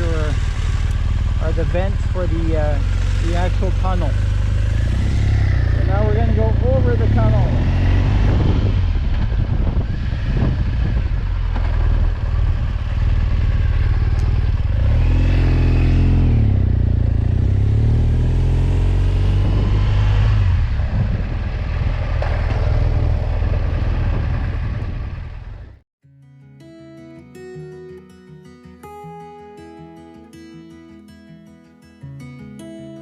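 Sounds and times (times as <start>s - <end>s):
motorcycle engine running: 0.0s - 25.8s
wind and road noise: 0.0s - 25.8s.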